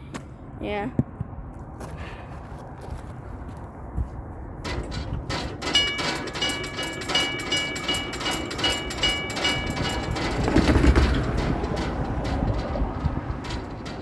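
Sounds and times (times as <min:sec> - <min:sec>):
metal hardware rattling: 0:04.6 - 0:14.0
metallic ringing pulses: 0:04.8 - 0:14.0.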